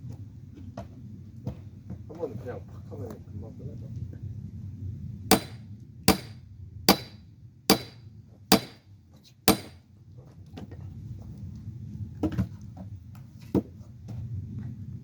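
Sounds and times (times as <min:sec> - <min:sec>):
sledgehammer striking steel wedge: 0:05.3 - 0:08.8, 0:09.5 - 0:09.8.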